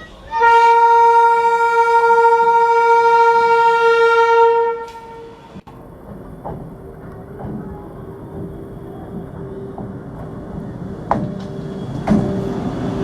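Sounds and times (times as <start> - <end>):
locomotive horn blast: 0.0 - 5.7.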